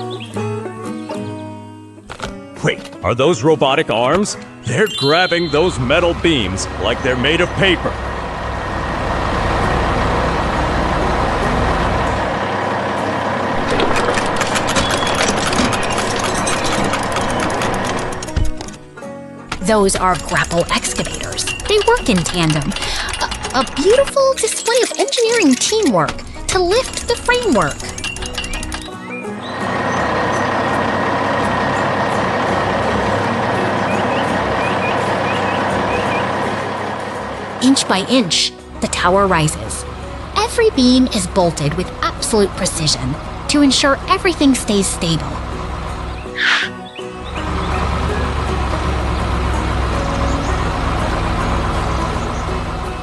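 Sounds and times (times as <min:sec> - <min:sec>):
heavy excavator engine rumbling: 0:04.5 - 0:53.0
constant machine whine: 0:04.8 - 0:53.0
rapid metal clicks and clanks: 0:13.6 - 0:18.9, 0:19.5 - 0:29.0.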